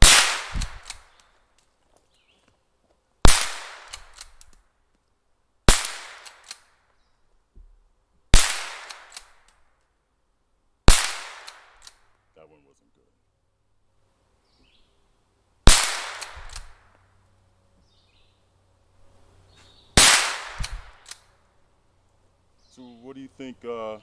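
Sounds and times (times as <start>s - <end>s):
gunshots with echo: 0.0s - 1.0s.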